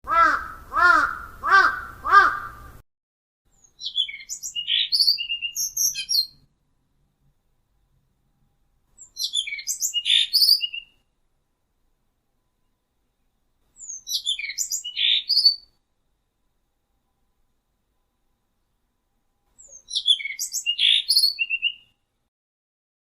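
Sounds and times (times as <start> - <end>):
harsh bird caws: 0.1 - 2.8
high twittering birdsong: 3.5 - 6.5, 9.0 - 11.1, 12.6 - 15.8, 19.5 - 22.0.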